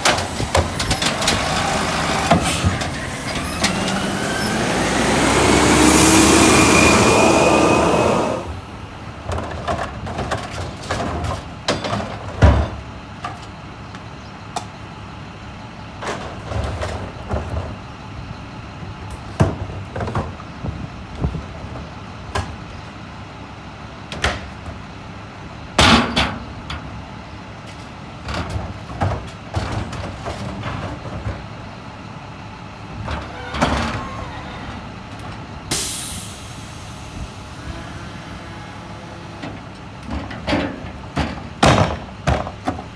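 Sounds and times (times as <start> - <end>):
truck engine running: 0.0 - 9.6, 32.5 - 42.9
short air hisses: 1.6 - 8.7, 35.7 - 39.4.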